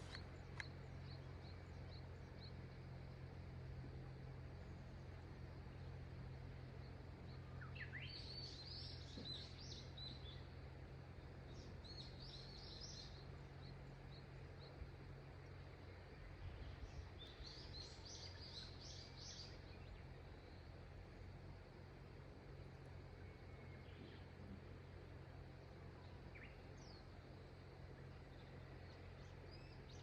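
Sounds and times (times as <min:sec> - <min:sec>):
songbird chirping: 0:00.0 - 0:30.0.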